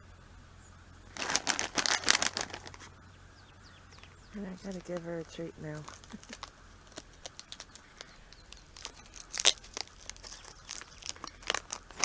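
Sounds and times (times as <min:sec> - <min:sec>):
plastic bag crinkling: 0:01.1 - 0:02.9, 0:04.4 - 0:12.0.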